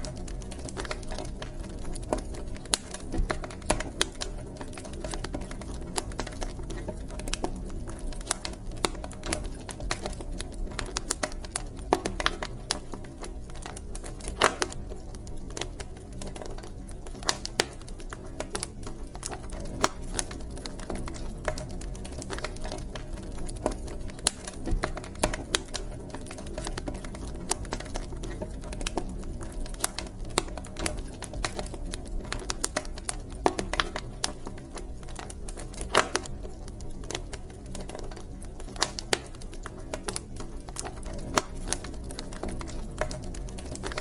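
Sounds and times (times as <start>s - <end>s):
fire crackling and popping: 0.0s - 44.0s
low rumble of flames: 0.0s - 44.0s.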